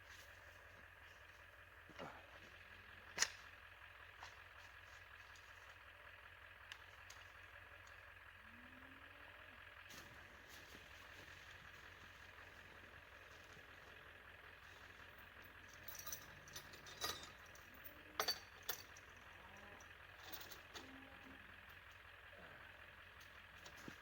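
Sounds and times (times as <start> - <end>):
metallic hardware clinking: 15.8 - 19.0.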